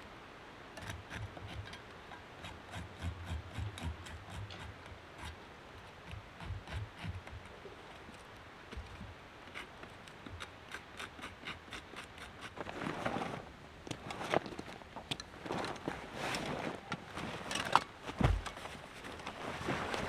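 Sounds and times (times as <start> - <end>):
rustling or scraping: 12.0 - 20.0
dull thump: 18.1 - 18.8.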